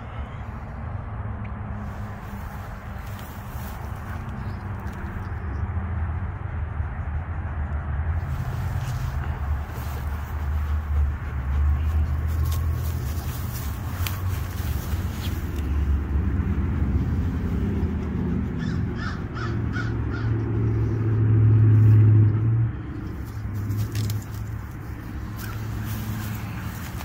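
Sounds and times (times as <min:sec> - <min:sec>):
steady low rumble: 0:00.0 - 0:27.0
bird calling: 0:18.4 - 0:20.4.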